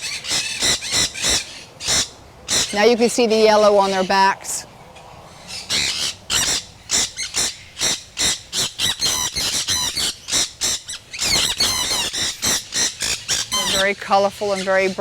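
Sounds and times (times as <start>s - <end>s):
parrots screeching: 0.0s - 2.9s, 5.3s - 14.0s.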